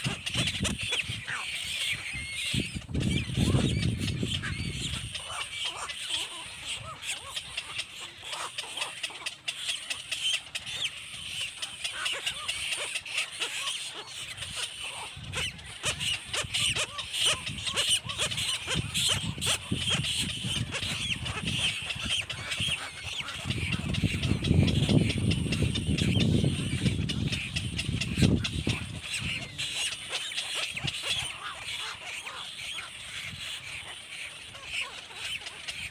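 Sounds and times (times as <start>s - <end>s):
baby birds cheeping: 0.0s - 35.9s.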